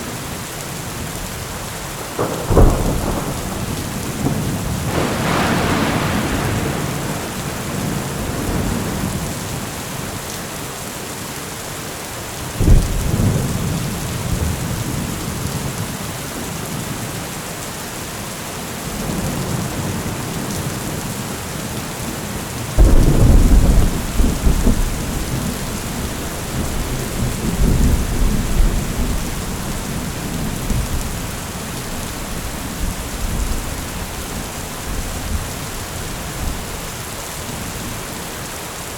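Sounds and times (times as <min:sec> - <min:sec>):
steady rain: 0:00.0 - 0:38.9
loud thunderclaps: 0:02.0 - 0:09.6, 0:12.6 - 0:15.1, 0:22.8 - 0:37.6
thunder rumbling: 0:02.0 - 0:09.6, 0:22.7 - 0:38.0.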